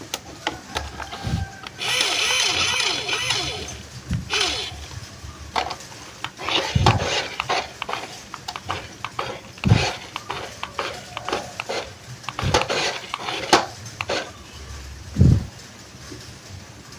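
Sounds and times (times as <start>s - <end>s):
hard plastic clattering: 5.5s - 14.3s.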